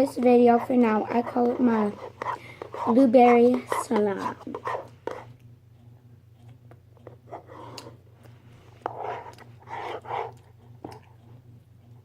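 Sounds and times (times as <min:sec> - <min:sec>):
person chewing food: 0:09.3 - 0:12.0.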